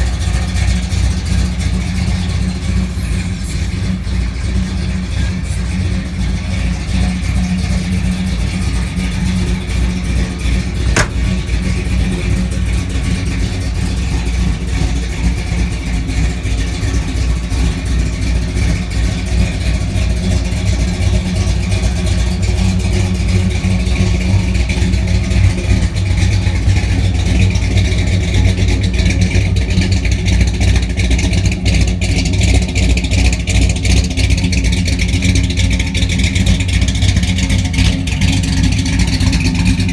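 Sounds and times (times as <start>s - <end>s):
truck engine droning: 0.0s - 39.9s.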